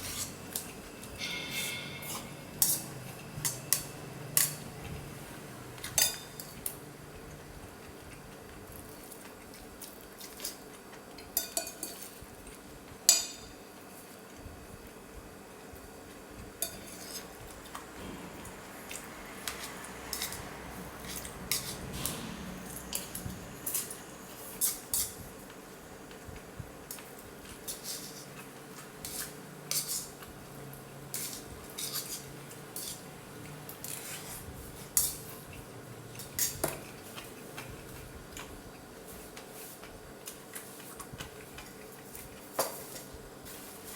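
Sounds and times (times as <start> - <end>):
spoon and chopsticks clinking bowl: 0.6 - 4.6, 11.3 - 12.1.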